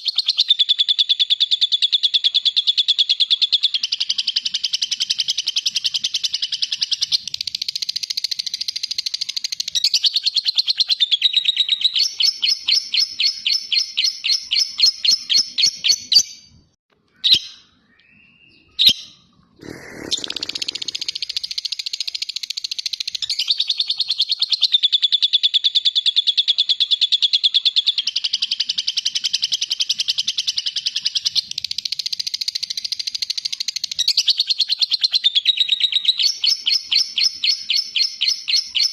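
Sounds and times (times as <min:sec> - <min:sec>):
lovebird chattering trill: 0:18.8 - 0:25.2.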